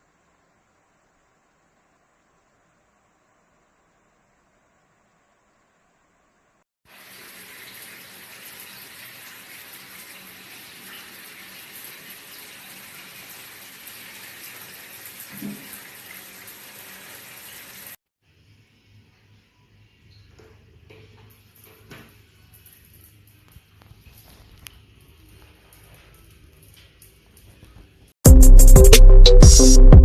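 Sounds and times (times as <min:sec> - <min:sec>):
shower spraying water: 0:06.9 - 0:18.0, 0:21.1 - 0:28.1.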